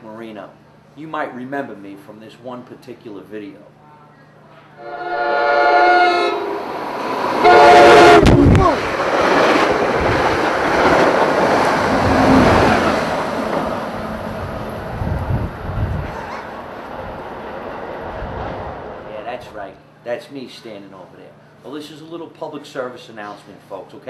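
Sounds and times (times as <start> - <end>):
train horn blasts: 4.8 - 6.7, 7.4 - 8.5
train rumbling past: 4.8 - 19.8.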